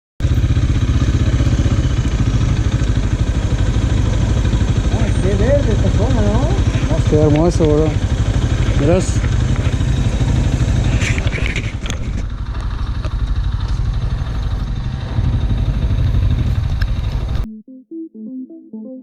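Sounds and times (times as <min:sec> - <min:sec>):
motorcycle engine running: 0:00.2 - 0:17.5
wind and road noise: 0:00.2 - 0:17.5
synthesizer and piano music: 0:17.4 - 0:19.0.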